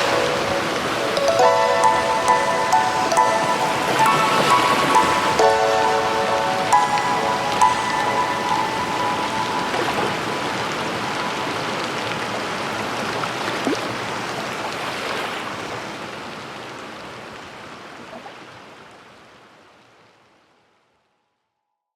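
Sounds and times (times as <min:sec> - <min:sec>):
steady rain: 0:00.0 - 0:14.8.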